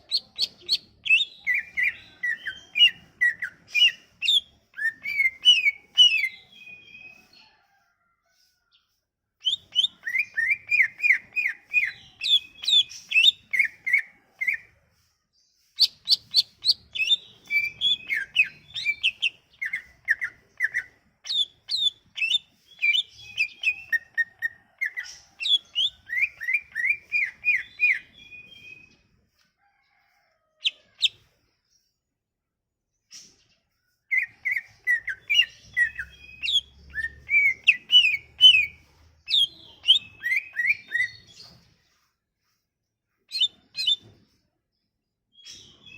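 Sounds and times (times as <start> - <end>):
songbird singing: 0.0 - 7.5, 9.4 - 14.7, 15.5 - 30.0, 33.1 - 41.6.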